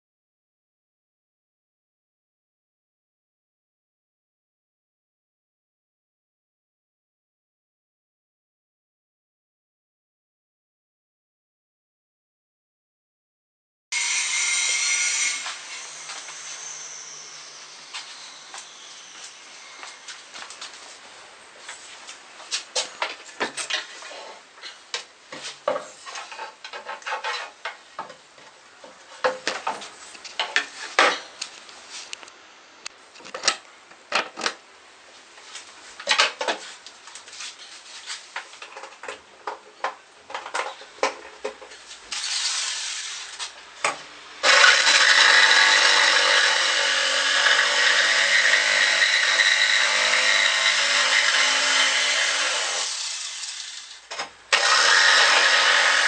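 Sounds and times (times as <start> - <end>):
electric power tool running: 44.4 - 56.0.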